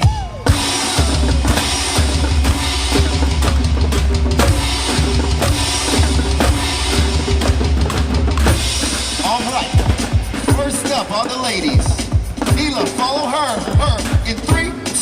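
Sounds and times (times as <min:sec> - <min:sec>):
deep bass line: 0:00.0 - 0:10.8
drum hit: 0:00.0 - 0:14.8
drum-kit groove: 0:00.0 - 0:15.0.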